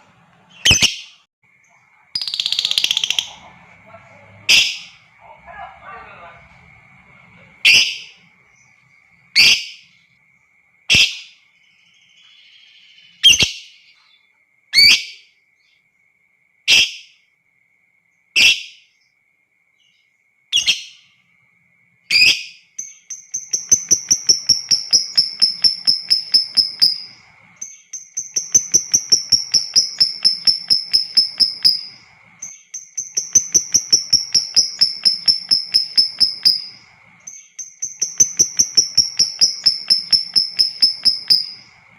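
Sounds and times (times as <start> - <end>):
lovebird chattering trills: 0.5 - 1.1, 2.2 - 5.1, 7.6 - 8.8, 22.1 - 41.9
faint high whine: 1.5 - 10.8, 23.2 - 41.9.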